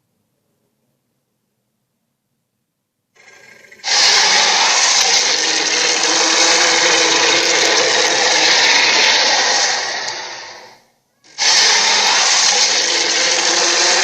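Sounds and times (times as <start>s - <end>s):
harsh rasping dinosaur roar: 3.2s - 14.0s.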